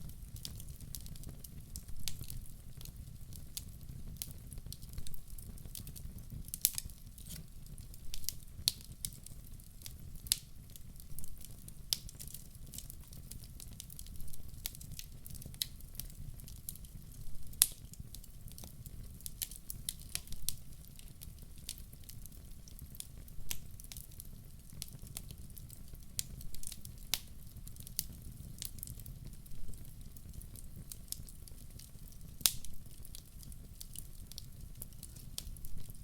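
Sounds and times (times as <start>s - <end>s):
fire crackling and popping: 0.0s - 36.0s
low rumble of fire: 0.0s - 36.0s.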